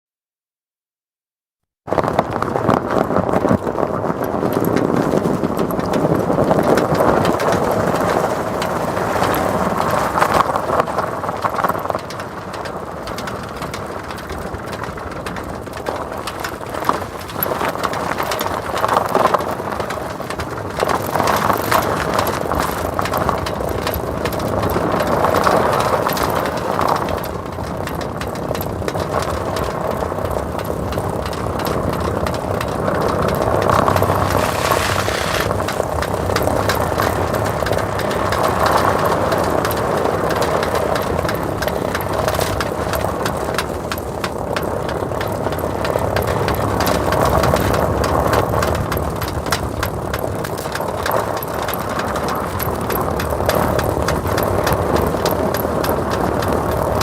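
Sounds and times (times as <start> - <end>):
tyres crunching packed snow: 1.9 - 57.0
tyre chains rattling: 15.0 - 57.0.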